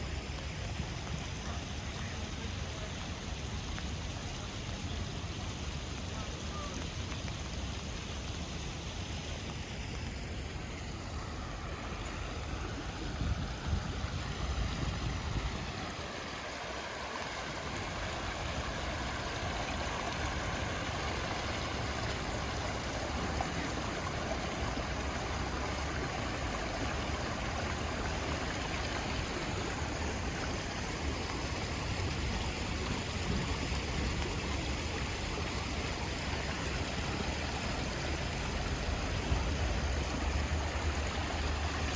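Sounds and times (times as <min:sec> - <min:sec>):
steady rain falling: 0:00.0 - 0:41.9.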